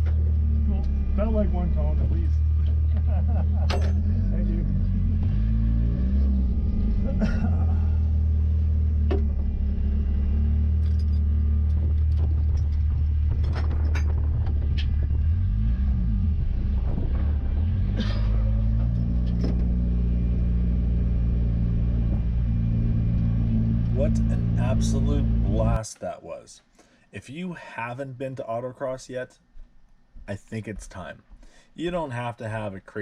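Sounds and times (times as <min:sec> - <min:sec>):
car engine running at low revs: 0:00.0 - 0:25.8.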